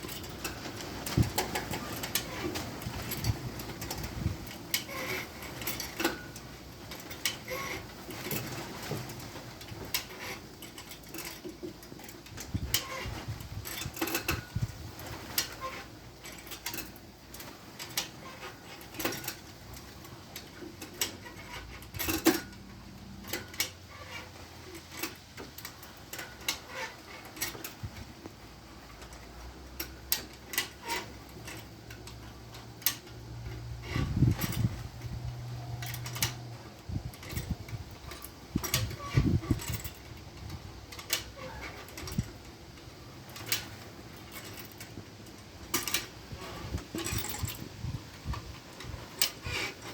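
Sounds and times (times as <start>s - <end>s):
metal tools clicking and clinking: 0.0s - 28.1s, 28.8s - 49.9s.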